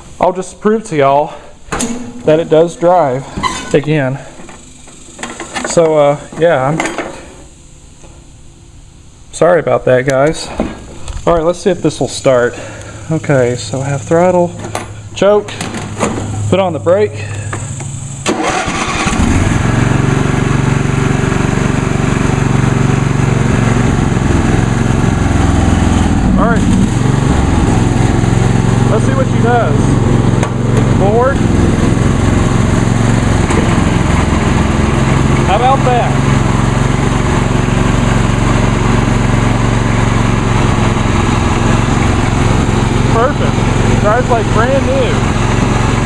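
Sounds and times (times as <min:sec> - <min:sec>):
person talking: 0:02.2 - 0:04.3, 0:11.2 - 0:14.6, 0:16.5 - 0:17.4, 0:26.3 - 0:26.8, 0:28.8 - 0:30.0, 0:30.9 - 0:31.5, 0:35.4 - 0:36.3, 0:43.1 - 0:45.3
lawn tractor engine running: 0:09.9 - 0:46.0
starter cranking: 0:18.2 - 0:19.5.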